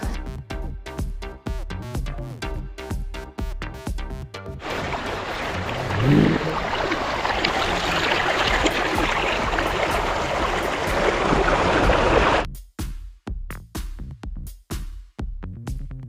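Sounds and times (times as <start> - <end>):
stream rushing: 4.6 - 12.4.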